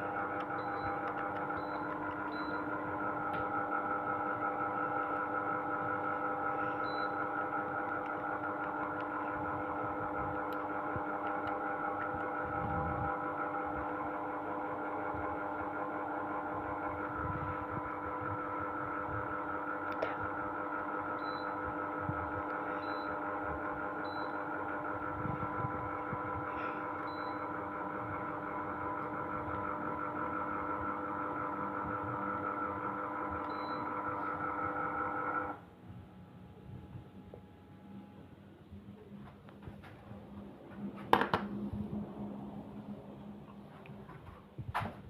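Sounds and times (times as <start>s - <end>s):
air conditioner humming: 0.0s - 45.0s.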